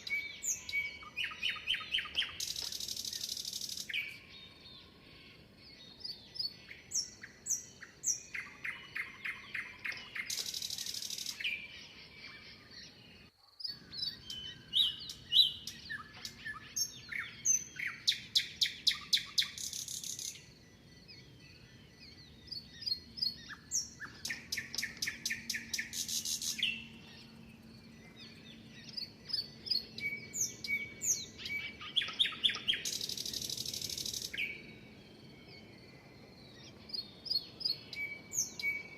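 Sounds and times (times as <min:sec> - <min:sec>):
songbirds singing and chirping: 0:00.0 - 0:38.9.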